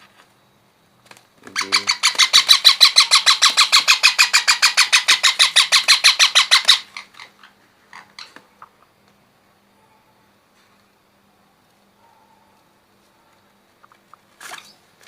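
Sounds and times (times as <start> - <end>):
parrot chick begging calls: 1.5 - 8.7.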